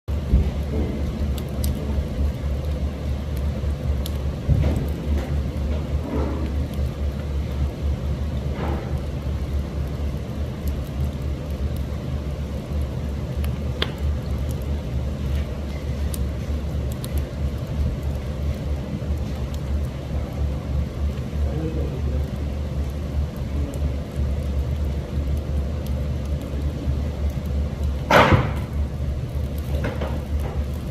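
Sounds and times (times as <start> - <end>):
fire burning with crackles: 0.1 - 30.9.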